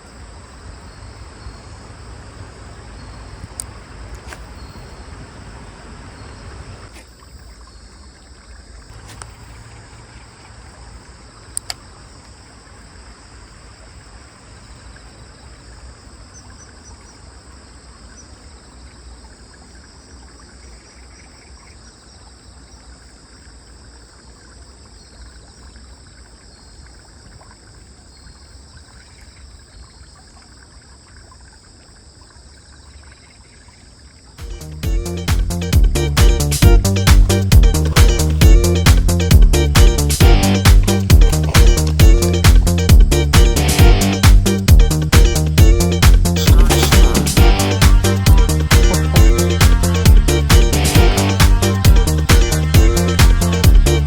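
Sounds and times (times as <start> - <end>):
low background noise: 0.0 - 30.8
crickets chirring: 0.0 - 46.4
sharp clicks: 11.6 - 11.8.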